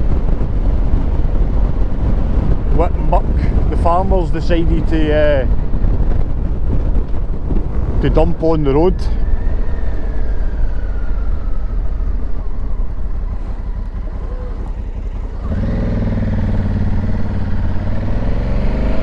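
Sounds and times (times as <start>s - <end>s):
wind noise: 0.0s - 19.0s
motorcycle engine accelerating: 9.6s - 19.0s.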